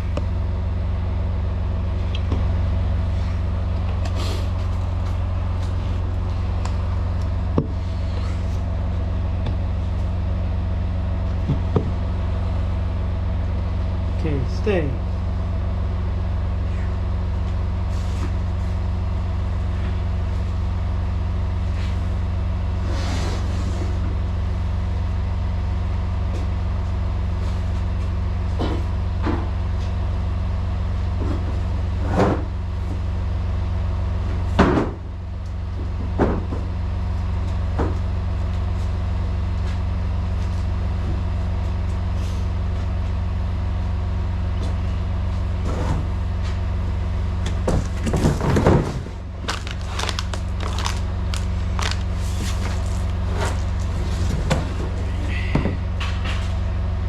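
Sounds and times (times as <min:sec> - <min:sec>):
diesel truck engine idling: 0:00.0 - 0:22.8, 0:49.1 - 0:57.0.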